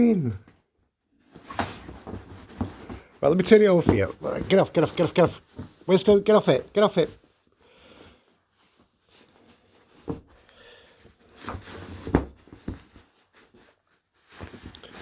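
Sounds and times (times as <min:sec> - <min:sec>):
padded dog bed thumping and scuffling: 0:01.4 - 0:03.2, 0:11.5 - 0:13.0.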